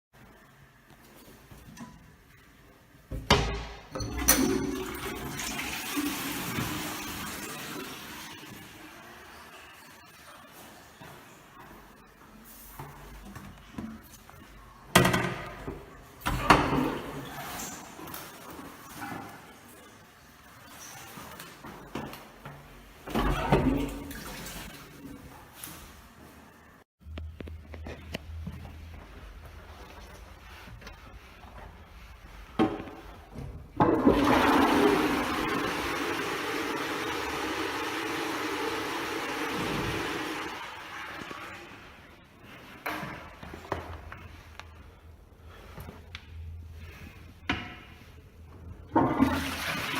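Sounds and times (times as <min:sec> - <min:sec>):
toilet flush click: 0:04.0 - 0:08.7, 0:33.8 - 0:41.6, 0:49.0 - 0:49.9
toilet water rushing: 0:04.0 - 0:10.0, 0:33.8 - 0:42.0, 0:48.9 - 0:49.9.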